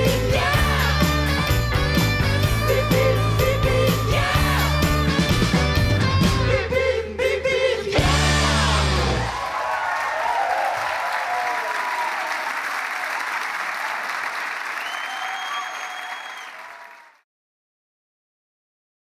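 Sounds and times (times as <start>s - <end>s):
audience applauding and cheering: 8.2s - 17.2s
whistle from crowd: 14.7s - 17.0s.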